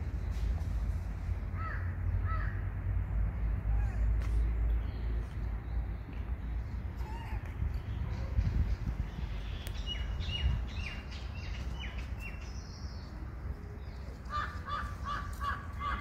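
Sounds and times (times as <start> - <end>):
birds calling: 3.7 - 16.0.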